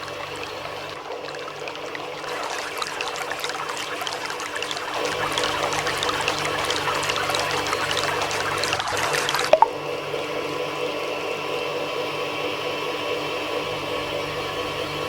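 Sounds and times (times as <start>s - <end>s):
water pouring and splashing: 0.0s - 9.8s.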